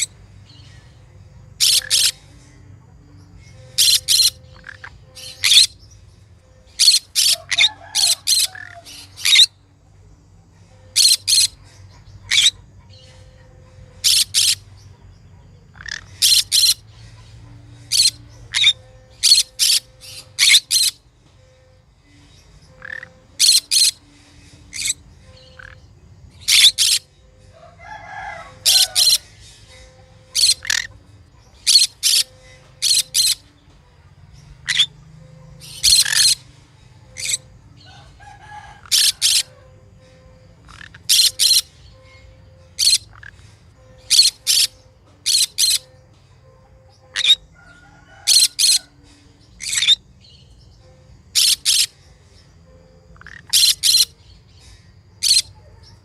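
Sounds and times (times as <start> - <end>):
parrot sharp high calls: 1.6 - 2.2, 27.8 - 31.0.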